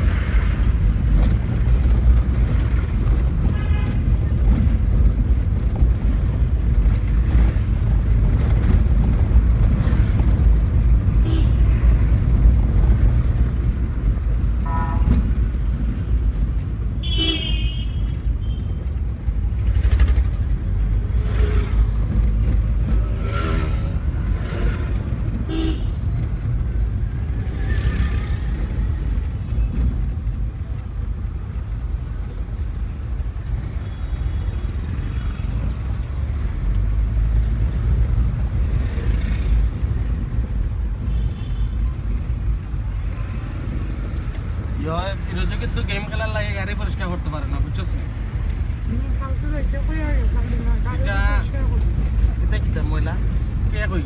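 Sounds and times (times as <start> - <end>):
low car engine: 0.0 - 17.2, 18.0 - 34.0
road rumble: 0.0 - 54.0
car horn toots: 11.2 - 11.8, 14.6 - 15.3, 17.0 - 18.8, 25.5 - 26.0.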